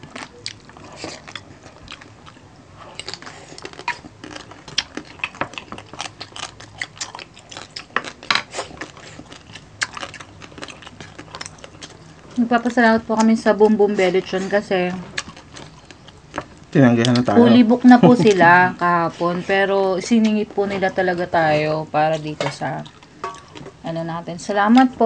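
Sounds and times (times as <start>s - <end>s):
chewing with sharp crunches: 0.0s - 17.4s, 22.2s - 23.8s.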